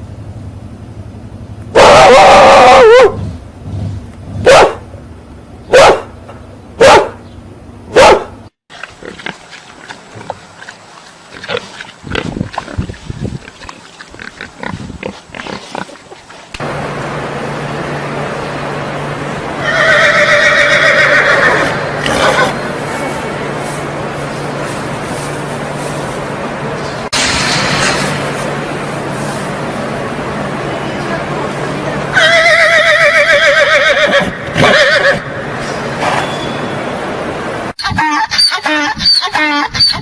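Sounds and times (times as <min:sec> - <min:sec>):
dog barking: 0:01.8 - 0:03.2, 0:04.4 - 0:04.9, 0:05.7 - 0:06.2, 0:06.8 - 0:07.2, 0:07.9 - 0:08.4
horse whinnying: 0:19.6 - 0:22.6, 0:32.2 - 0:35.3.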